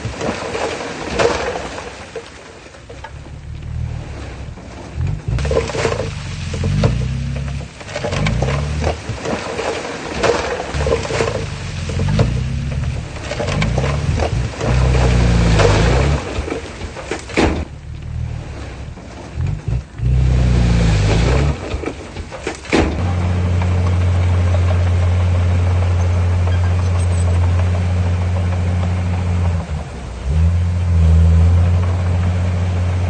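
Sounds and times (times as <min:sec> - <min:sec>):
heavy diesel engine revving: 0:03.0 - 0:09.7, 0:10.6 - 0:22.0, 0:22.7 - 0:33.0
sharp knocks: 0:10.2 - 0:17.8, 0:21.6 - 0:23.2.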